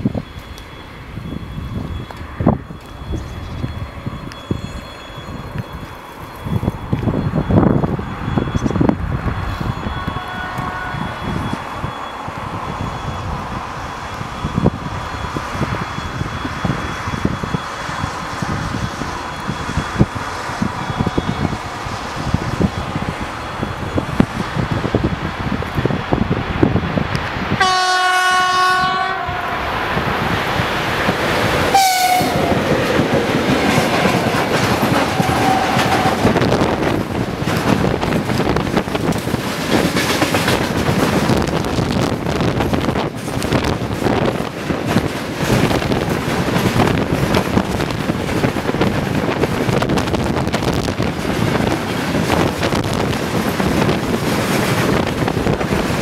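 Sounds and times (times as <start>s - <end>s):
train rolling and wheel clatter: 0.0s - 56.0s
locomotive horn: 9.8s - 11.5s, 27.6s - 29.8s, 31.6s - 36.6s.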